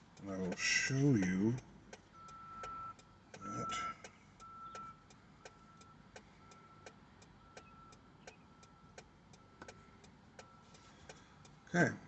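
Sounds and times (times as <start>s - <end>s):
faint steady ticking: 0.0s - 12.0s
short high beep: 3.5s - 4.9s.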